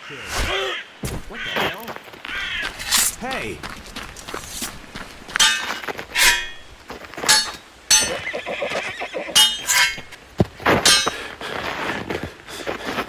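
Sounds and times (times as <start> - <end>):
dull thud: 0.4 - 1.5
horse neighing: 8.2 - 9.4.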